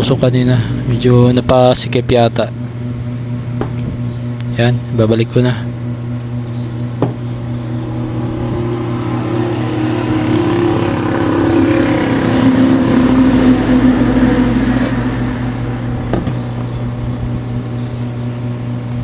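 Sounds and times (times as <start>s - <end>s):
steady low hum: 0.0s - 19.0s
vehicle engine passing by: 7.4s - 17.6s.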